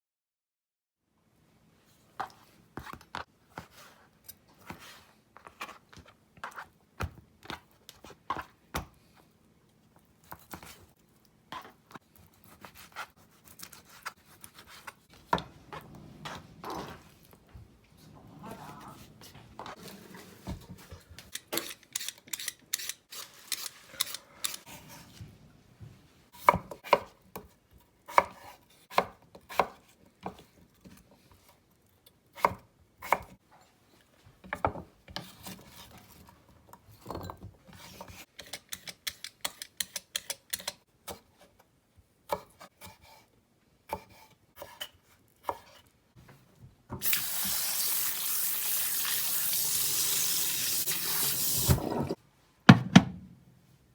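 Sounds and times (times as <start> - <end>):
water tap running: 47.0 - 52.2.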